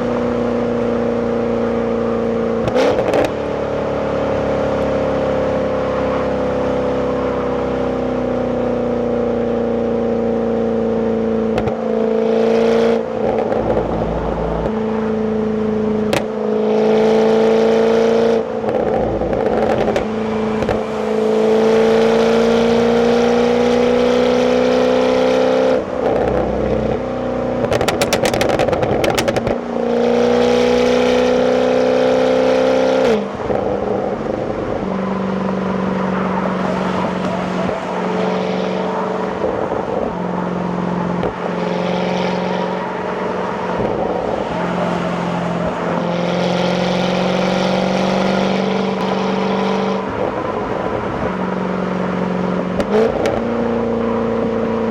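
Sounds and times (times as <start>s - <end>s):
car engine at cruising revs: 0.0s - 54.9s
exhaust crackles: 13.1s - 15.1s.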